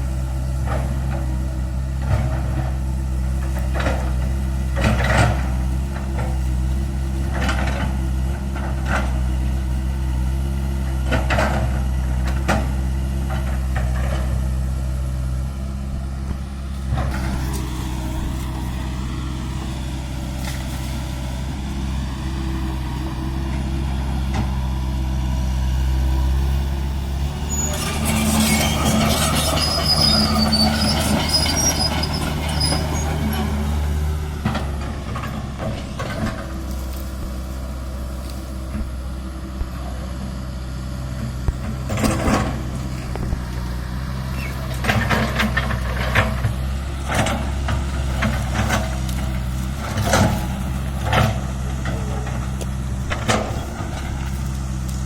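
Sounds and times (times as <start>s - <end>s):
excavator diesel engine running: 0.0s - 55.0s
rattling scraping clatter: 27.2s - 38.4s, 41.6s - 43.6s, 44.3s - 55.0s.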